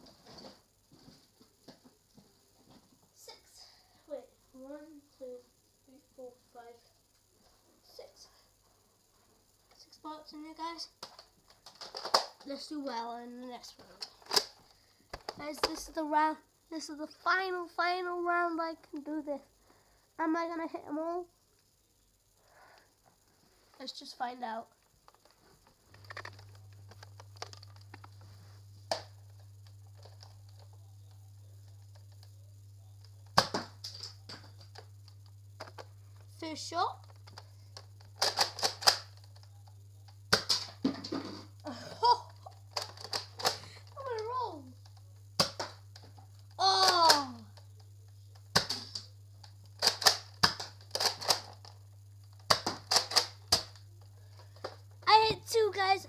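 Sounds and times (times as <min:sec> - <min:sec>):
steady low hum: 0:00.0 - 0:56.0
plastic toy blaster clicks: 0:14.2 - 0:14.5, 0:38.1 - 0:39.2, 0:49.8 - 0:51.6, 0:52.5 - 0:53.8.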